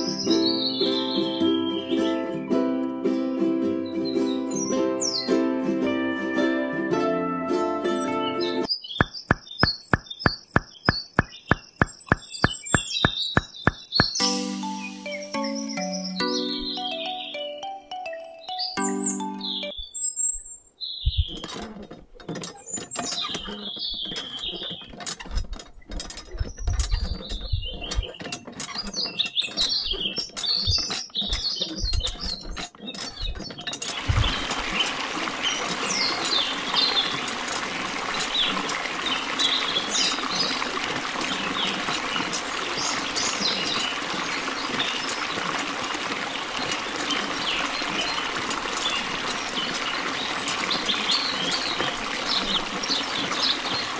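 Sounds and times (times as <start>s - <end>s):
bird chirps: 0.0s - 2.6s, 8.3s - 21.5s
water splashing into pond: 8.8s - 17.4s, 21.3s - 53.9s
toy hand pump clicking: 21.4s - 34.0s.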